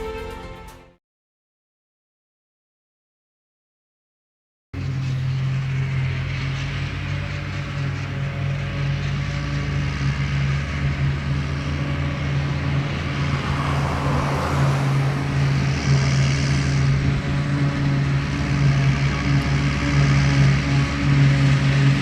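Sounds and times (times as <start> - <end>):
diesel machinery engine running: 4.8 - 22.0.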